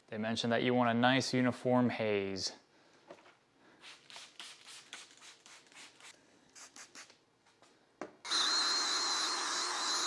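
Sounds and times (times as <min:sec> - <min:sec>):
drill whining: 0:08.3 - 0:10.0.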